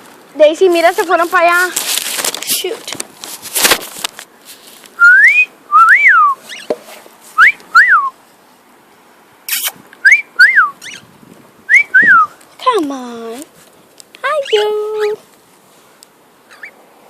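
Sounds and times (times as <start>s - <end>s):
cockatiel whistling: 5.0s - 6.7s, 7.4s - 8.1s, 9.6s - 11.0s.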